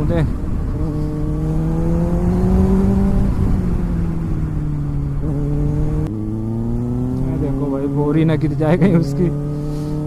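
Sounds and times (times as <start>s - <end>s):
wind noise on microphone: 0.0s - 6.1s
motorcycle engine cruising: 0.0s - 10.0s.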